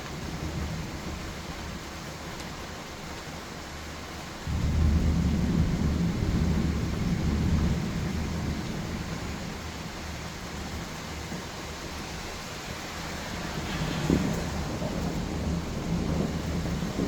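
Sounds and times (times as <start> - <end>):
steady rain: 0.0 - 17.0
low thunder rumble: 4.4 - 12.2, 13.0 - 17.0.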